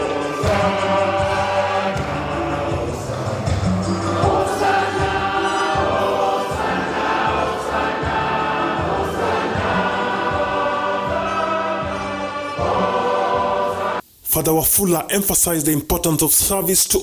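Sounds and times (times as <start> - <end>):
steady low beat: 0.0 - 13.6
choir singing a hymn: 0.0 - 14.0.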